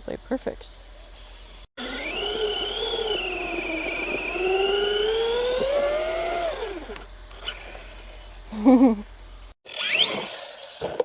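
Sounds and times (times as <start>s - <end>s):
rc car electric motor whining: 1.3s - 8.2s, 9.7s - 11.0s.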